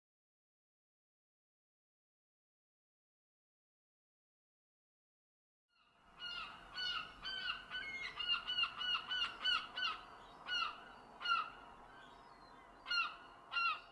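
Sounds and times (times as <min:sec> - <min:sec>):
birds harsh calls: 0:06.2 - 0:13.9.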